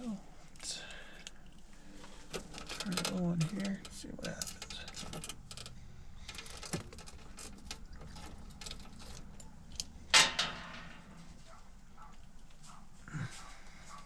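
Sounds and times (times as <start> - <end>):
loud clunk: 10.1 - 11.2.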